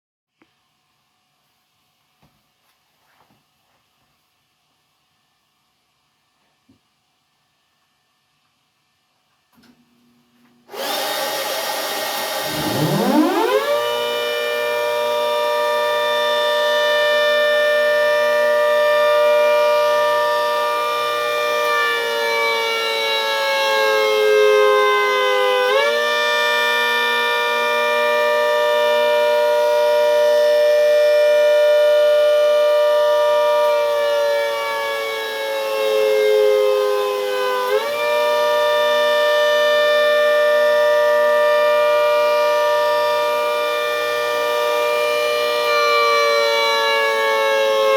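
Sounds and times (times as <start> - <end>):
siren chord wailing: 12.4 - 47.9.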